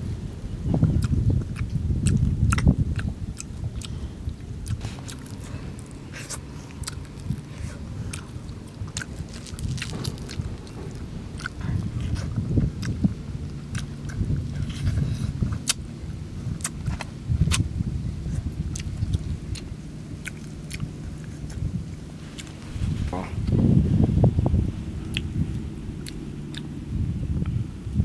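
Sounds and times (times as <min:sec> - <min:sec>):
low rumble: 0:00.0 - 0:28.0
mouth smacking clicks: 0:00.8 - 0:14.7, 0:15.5 - 0:15.8, 0:16.6 - 0:17.7, 0:18.7 - 0:21.7, 0:25.0 - 0:26.7
person chewing fish: 0:00.9 - 0:22.6, 0:25.1 - 0:26.7.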